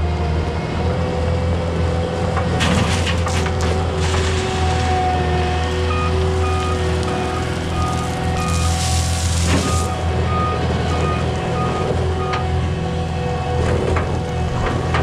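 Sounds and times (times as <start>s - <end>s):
diesel engine running: 0.0s - 15.0s
backup alarm beeping: 5.9s - 8.8s, 9.6s - 12.4s.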